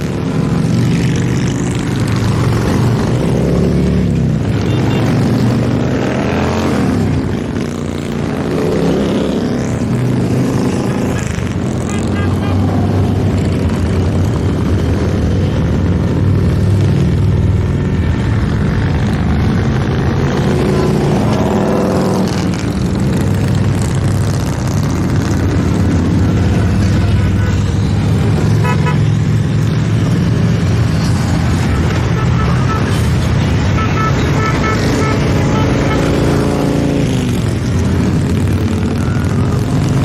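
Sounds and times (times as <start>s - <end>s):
motorcycles riding past: 0.0s - 40.0s
horn beeping: 31.6s - 36.4s.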